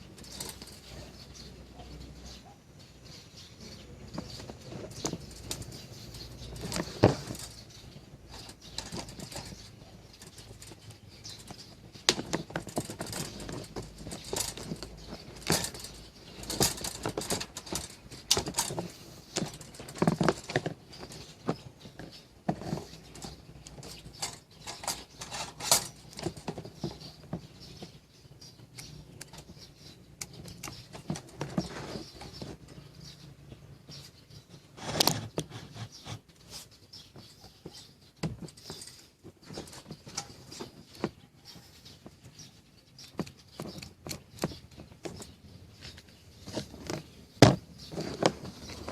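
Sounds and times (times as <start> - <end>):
clicks and rattles of toaster parts: 8.3 - 27.4.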